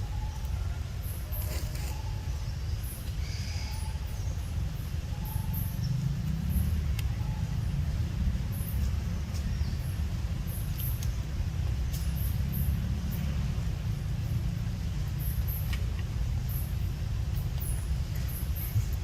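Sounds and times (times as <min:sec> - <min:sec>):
steady low rumble: 0:02.0 - 0:19.0
faint high chirps and clicks: 0:10.7 - 0:11.2.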